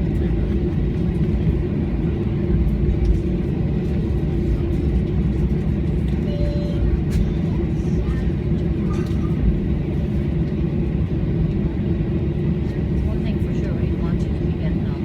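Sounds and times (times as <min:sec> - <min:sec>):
aeroplane engines rumbling: 0:00.0 - 0:15.0
faint short tone: 0:06.2 - 0:06.9.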